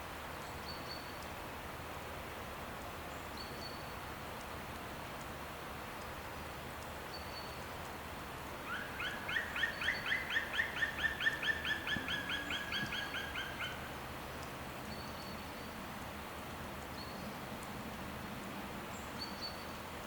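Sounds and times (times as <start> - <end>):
steady outdoor hiss: 0.0 - 20.0
bird calling in quick notes: 8.7 - 13.9.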